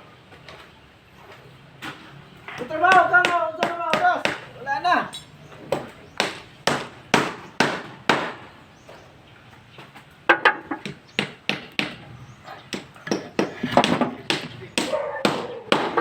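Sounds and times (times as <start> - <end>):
hammer blows: 2.5 - 4.6.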